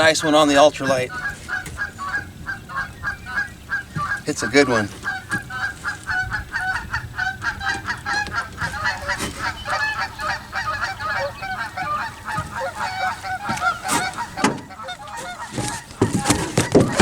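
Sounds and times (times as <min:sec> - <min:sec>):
chorus of animals calling: 0:00.0 - 0:17.0
sharp knocks: 0:11.8 - 0:17.0.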